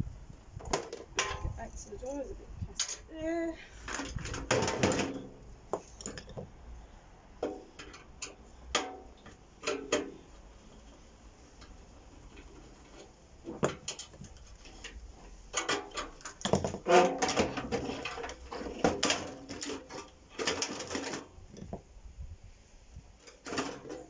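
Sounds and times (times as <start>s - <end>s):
plastic and metal parts clattering: 3.8s - 6.5s, 12.3s - 21.8s, 23.2s - 24.0s.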